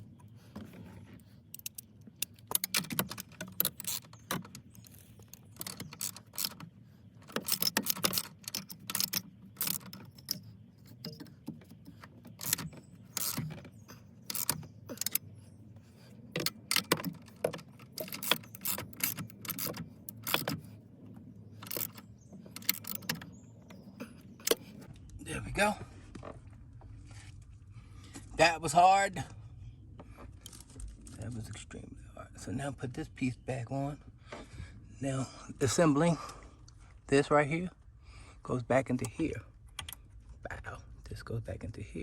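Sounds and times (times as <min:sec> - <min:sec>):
metal and plastic parts clicking: 0:00.2 - 0:20.8, 0:21.6 - 0:24.9.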